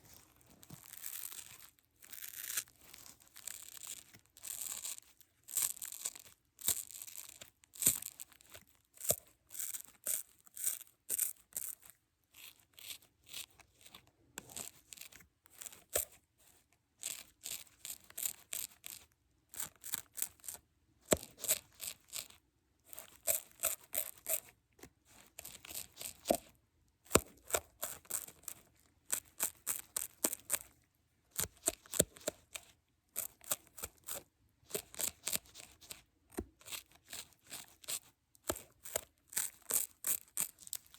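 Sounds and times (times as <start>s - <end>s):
crisp clicking and crinkling: 0.0s - 26.5s, 27.1s - 40.9s.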